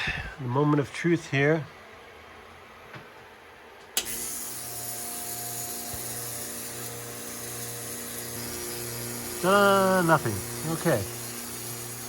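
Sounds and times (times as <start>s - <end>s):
espresso machine humming: 4.0s - 12.0s.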